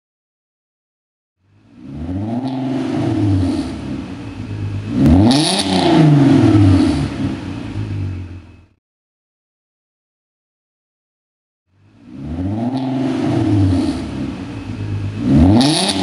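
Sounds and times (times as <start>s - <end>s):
car engine revving: 1.5s - 8.8s, 11.8s - 16.0s.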